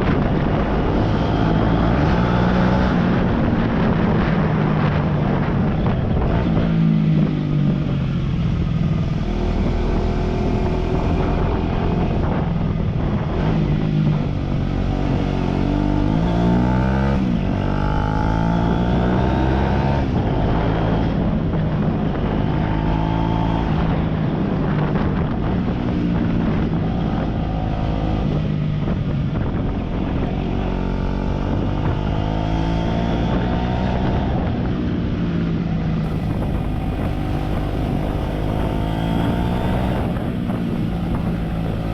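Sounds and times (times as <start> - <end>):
motorcycle engine revving: 36.0 - 41.9.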